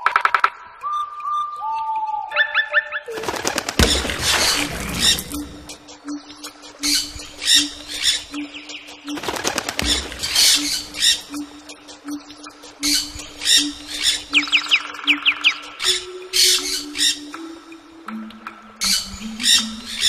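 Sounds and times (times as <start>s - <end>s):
whistled bird notes: 0.1s - 3.2s, 3.8s - 9.2s, 9.8s - 12.2s, 12.8s - 18.1s
harsh rasping bird calls: 0.8s - 17.4s.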